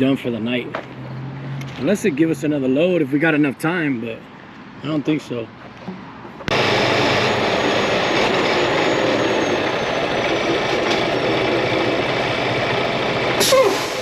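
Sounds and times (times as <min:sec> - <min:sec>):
loud road noise: 0:00.0 - 0:14.0
truck diesel engine running: 0:06.5 - 0:14.0.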